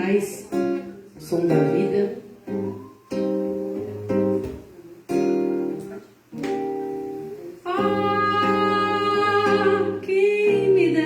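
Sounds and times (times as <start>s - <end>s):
acoustic guitar chords: 0.0s - 11.0s.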